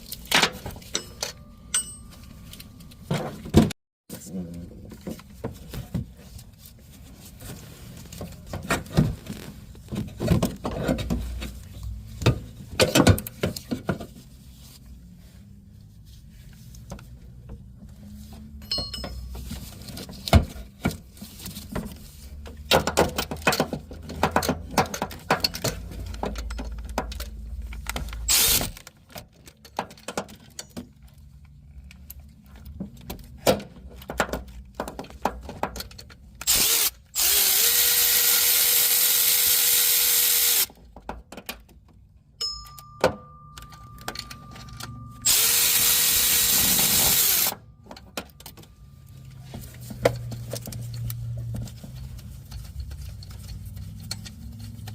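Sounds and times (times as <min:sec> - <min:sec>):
wrench clinking on metal: 0:00.8 - 0:03.0, 0:18.6 - 0:19.5, 0:42.4 - 0:48.6.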